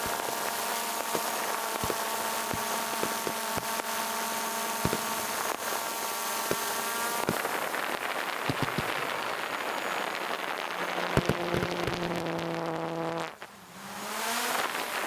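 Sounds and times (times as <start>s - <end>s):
drone propellers buzzing: 0.0s - 7.8s, 10.9s - 15.0s
fireworks cracking: 0.0s - 15.0s
steady hiss: 0.0s - 15.0s.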